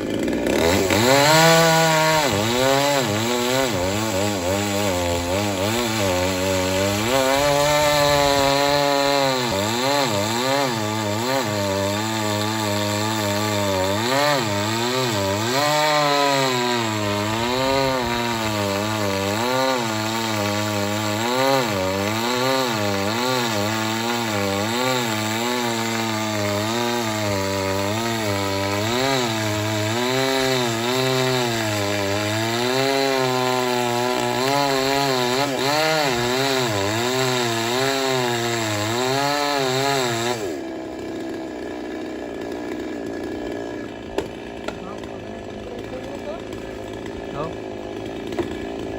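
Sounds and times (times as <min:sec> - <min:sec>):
chainsaw cutting wood: 0:00.0 - 0:48.9.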